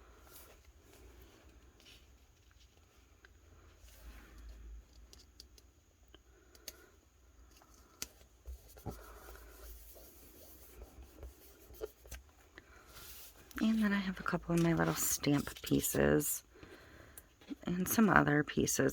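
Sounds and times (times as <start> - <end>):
paper rustling and scratching: 7.5 - 16.2.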